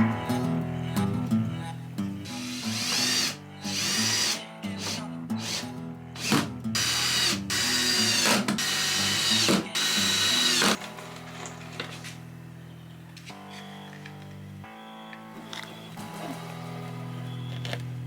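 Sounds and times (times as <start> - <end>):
background music: 0.0 - 18.0
power drill bursts: 2.3 - 12.2.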